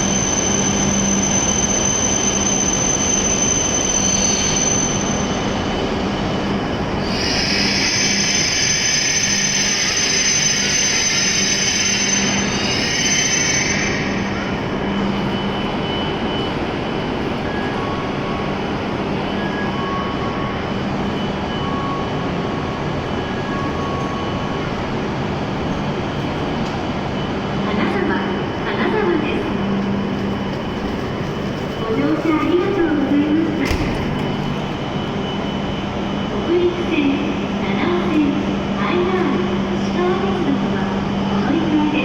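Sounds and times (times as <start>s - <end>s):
train equipment hum: 0.0s - 42.0s
train brakes squealing and hissing: 7.0s - 16.4s.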